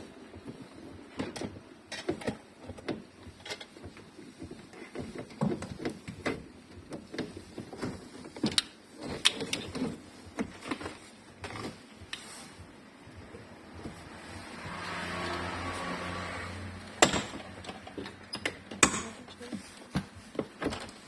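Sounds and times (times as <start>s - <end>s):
sharp knocks: 17.0s - 19.2s.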